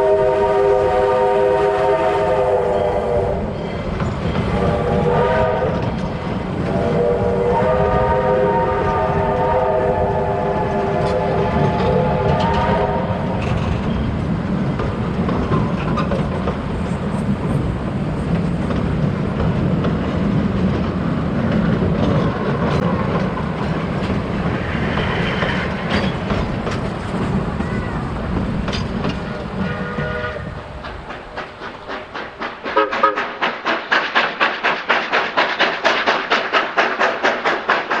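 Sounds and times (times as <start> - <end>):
steam locomotive chime whistle: 0.0 - 5.8, 6.7 - 13.4, 29.6 - 30.6, 32.8 - 33.4
train running rumble: 0.0 - 38.0
fast even clatter: 30.8 - 38.0.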